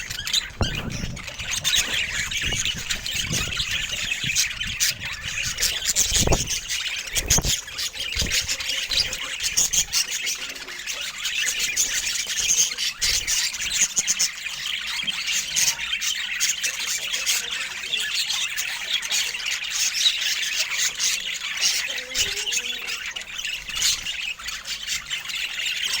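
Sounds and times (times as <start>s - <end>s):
low bumps: 0.0s - 6.7s
budgerigars chirping: 0.0s - 26.0s.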